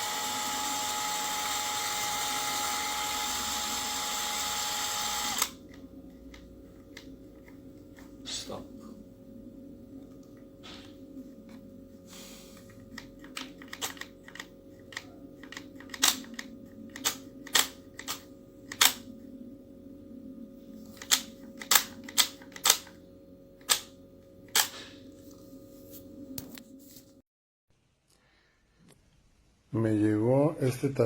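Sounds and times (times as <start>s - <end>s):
low hum: 5.3s - 12.1s, 14.5s - 22.0s.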